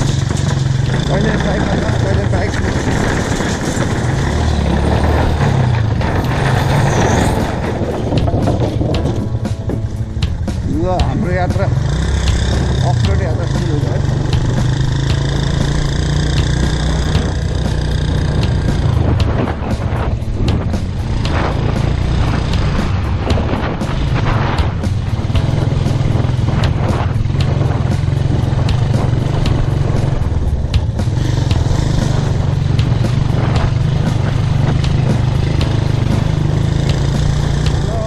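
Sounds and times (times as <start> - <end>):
knocks and rattles from bumps: 0.0 - 30.1
motorcycle engine running: 0.0 - 38.0.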